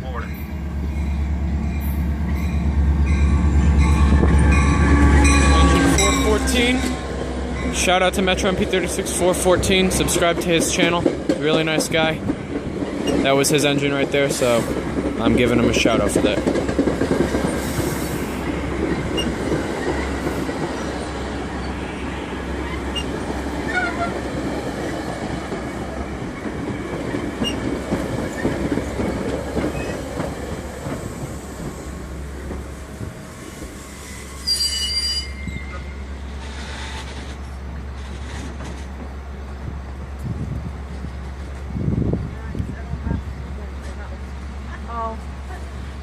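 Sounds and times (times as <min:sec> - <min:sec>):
train cars rumbling and clattering: 0:00.0 - 0:46.0
train wheel squeals: 0:19.1 - 0:20.1, 0:29.5 - 0:30.1, 0:33.8 - 0:37.4
loud high-pitched brake squeal: 0:34.0 - 0:37.1.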